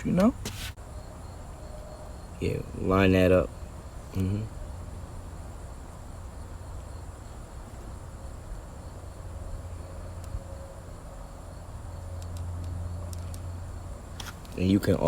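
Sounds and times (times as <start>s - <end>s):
low steady hum: 0.0s - 15.0s
faint clicks: 12.2s - 13.5s.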